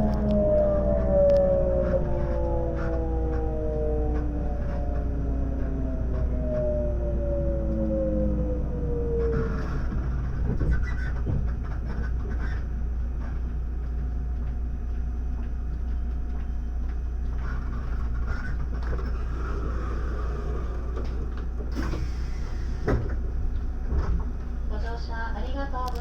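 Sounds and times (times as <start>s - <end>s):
clicks and creaks: 0.0s - 8.0s, 9.1s - 13.5s
low hum of train equipment: 0.0s - 26.0s.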